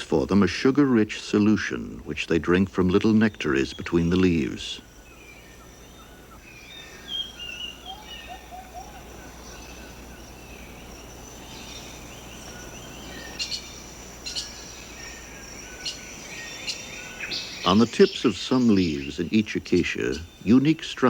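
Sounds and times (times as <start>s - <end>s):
insect drone: 0.3s - 21.0s.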